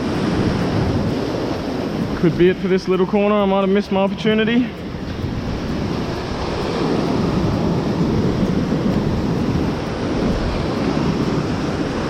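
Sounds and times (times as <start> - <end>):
surf washing over reef: 0.0 - 12.0
wind buffeting microphone: 0.0 - 12.0.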